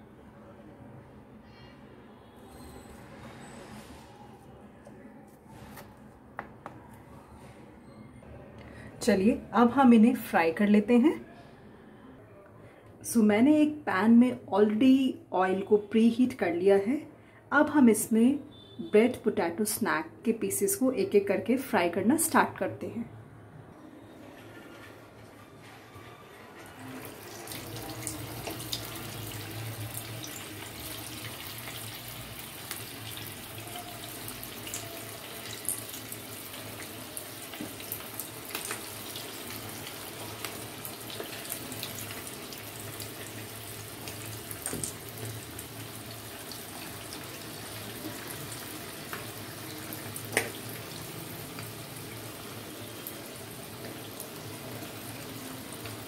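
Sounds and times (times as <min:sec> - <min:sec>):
food sizzling in hot oil: 0:27.0 - 0:56.0.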